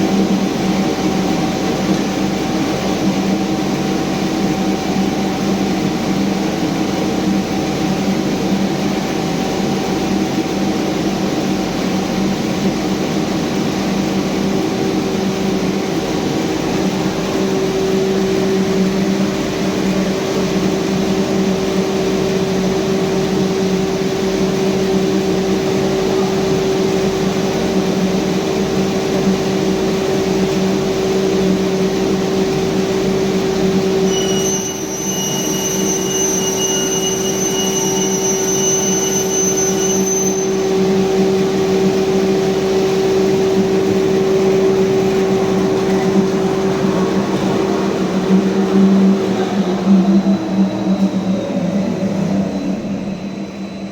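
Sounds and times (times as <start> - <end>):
thin high whine: 31.9 - 53.9.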